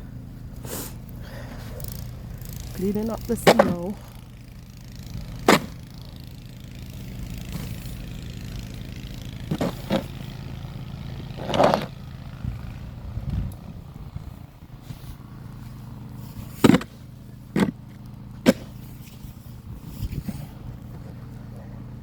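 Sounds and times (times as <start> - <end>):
car engine idling: 0.0 - 22.0
snow shovel scraping: 5.4 - 5.9, 7.1 - 8.1, 9.4 - 10.6, 11.2 - 12.0.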